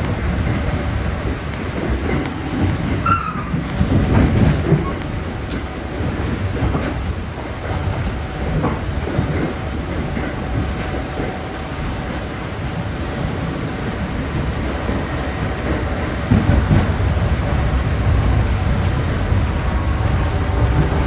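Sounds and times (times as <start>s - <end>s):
train wheels rumbling on rail: 0.0s - 21.0s
wheel squeal: 2.9s - 3.6s.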